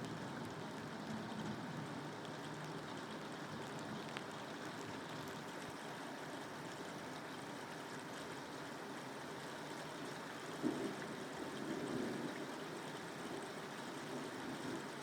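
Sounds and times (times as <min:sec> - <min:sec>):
steady rain falling: 0:00.0 - 0:15.0
raindrop ticks: 0:02.2 - 0:05.4.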